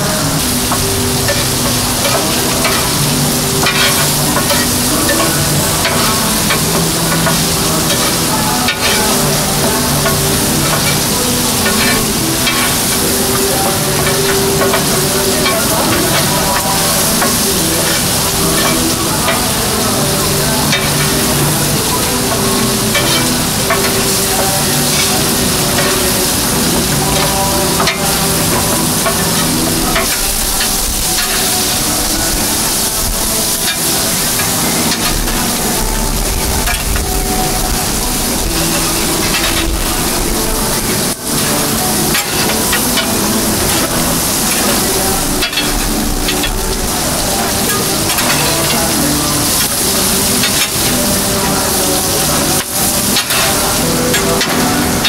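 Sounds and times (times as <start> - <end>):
meat sizzling on a griddle: 0.0 - 55.0
utensils clicking and scraping griddle: 0.0 - 55.0.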